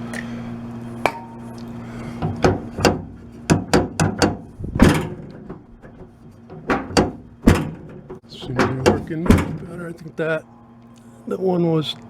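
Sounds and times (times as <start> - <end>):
tailgate latch clicking: 2.5 - 9.7.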